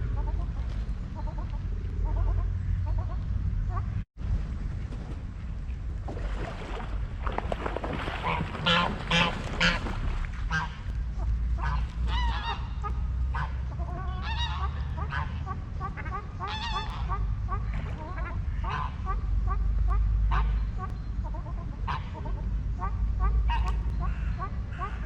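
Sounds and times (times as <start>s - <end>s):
steady low rumble: 0.0s - 25.0s
waterfowl honking: 8.1s - 25.0s.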